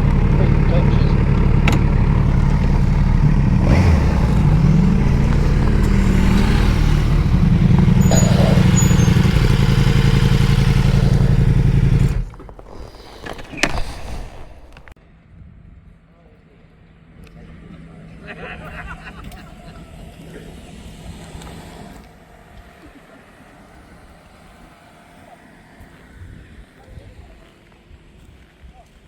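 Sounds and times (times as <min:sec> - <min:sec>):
motorcycle engine idling: 0:00.0 - 0:12.8.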